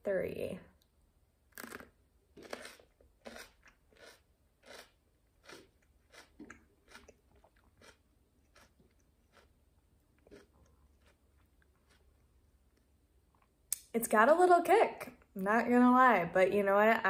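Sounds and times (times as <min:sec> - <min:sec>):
person chewing crunchy pepper: 0:01.5 - 0:13.5.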